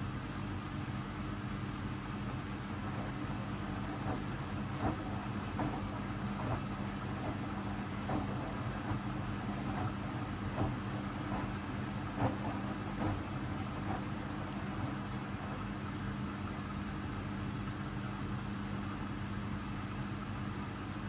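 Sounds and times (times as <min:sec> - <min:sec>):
washing machine motor humming: 0:00.0 - 0:21.0
laundry thudding in drum: 0:03.9 - 0:15.0.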